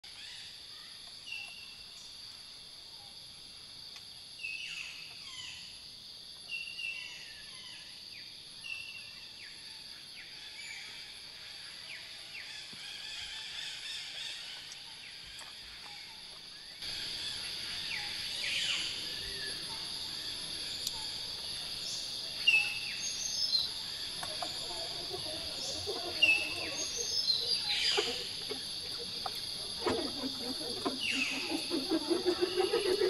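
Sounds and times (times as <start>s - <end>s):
forest ambience hiss: 0.0s - 33.0s
birds singing: 11.9s - 33.0s.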